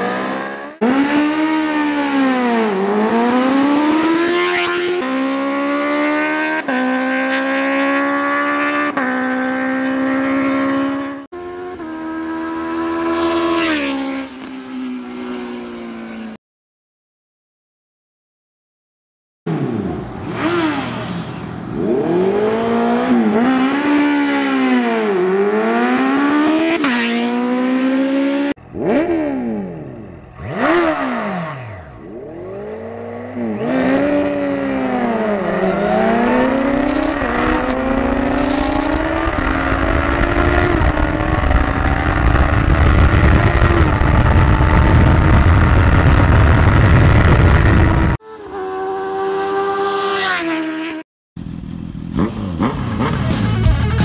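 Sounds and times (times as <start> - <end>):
motorcycle engines revving: 0.0 - 16.4, 19.5 - 54.0
wind rush on microphone: 35.5 - 48.2.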